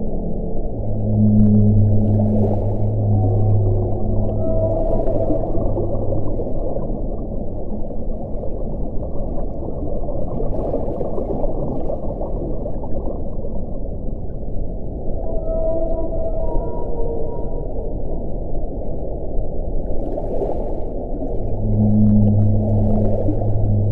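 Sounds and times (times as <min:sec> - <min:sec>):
faint wind howling: 0:00.0 - 0:10.0, 0:12.3 - 0:23.9
wind blowing: 0:21.4 - 0:23.9.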